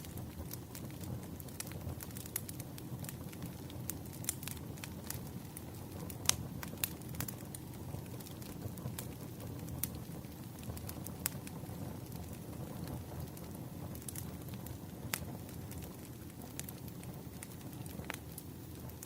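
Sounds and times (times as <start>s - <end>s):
sharp pops of fire: 0.0s - 19.0s
wood fire crackling: 0.0s - 19.0s.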